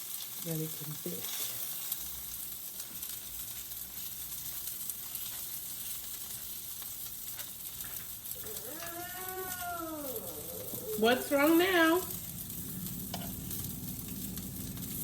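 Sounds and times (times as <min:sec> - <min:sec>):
food sizzling in a frying pan: 0:00.0 - 0:15.0
drawn-out pitched call: 0:08.4 - 0:11.3.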